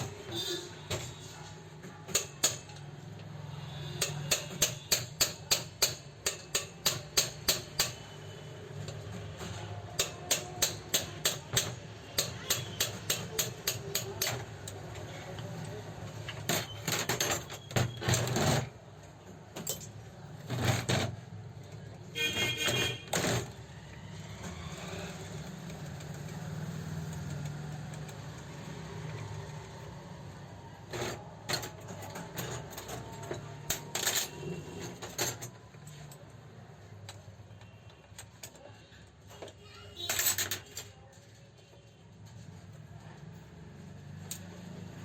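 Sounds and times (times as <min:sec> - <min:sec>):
metallic clicks of tools and parts: 0:02.0 - 0:03.3, 0:04.0 - 0:08.2, 0:10.0 - 0:15.0, 0:19.5 - 0:20.1.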